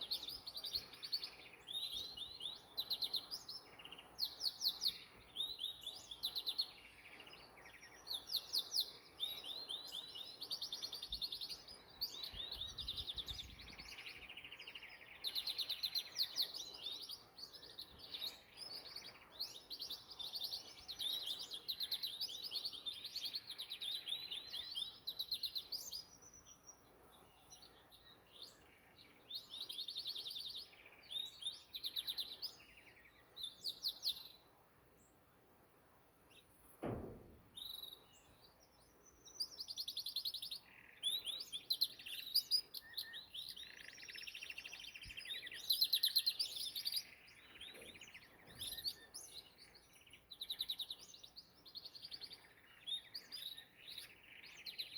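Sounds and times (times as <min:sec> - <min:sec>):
canary singing trills: 0:37.6 - 0:54.9.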